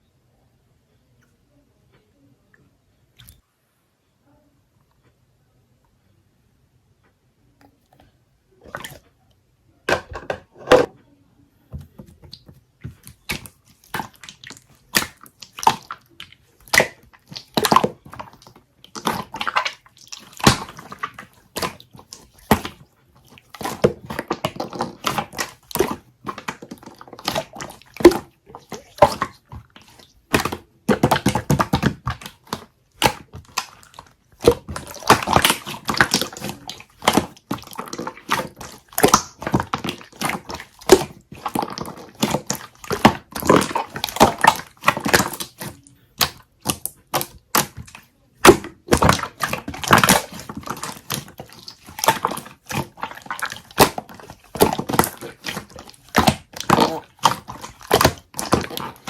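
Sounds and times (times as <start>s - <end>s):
slime squeezed by hand: 12.3s - 59.0s.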